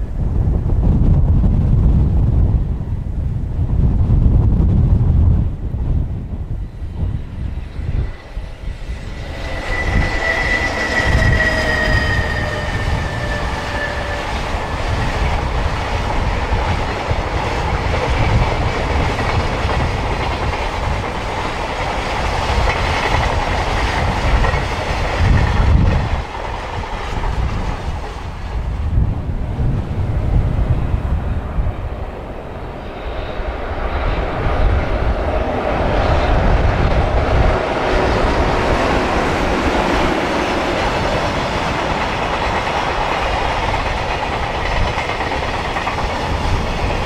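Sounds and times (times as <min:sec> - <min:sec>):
train high whine: 0:00.0 - 0:47.0
wind on microphone: 0:00.0 - 0:47.0
freight train wheels clattering: 0:07.0 - 0:28.7, 0:35.0 - 0:47.0.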